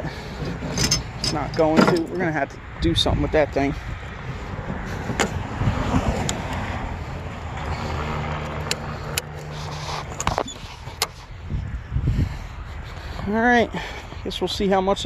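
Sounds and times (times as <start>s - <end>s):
truck engine and road rumble: 0.0s - 15.0s
clicks and rattles: 0.4s - 2.3s.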